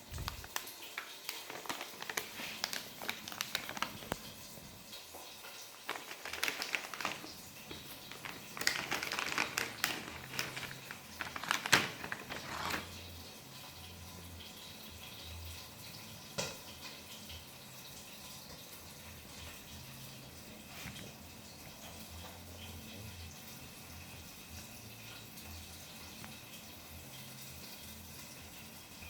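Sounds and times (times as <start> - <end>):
plastic package crinkling: 0.0 - 4.5, 5.8 - 13.0.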